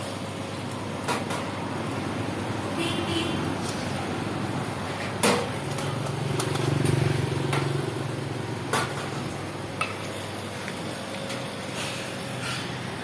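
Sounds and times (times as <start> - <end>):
street traffic: 0.0 - 13.0
motorcycle engine: 2.4 - 9.4.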